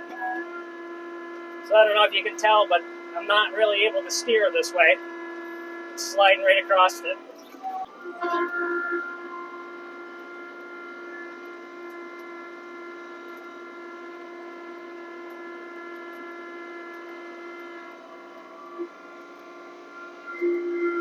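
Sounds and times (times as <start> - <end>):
tractor engine drone with whine: 0.0 - 21.0.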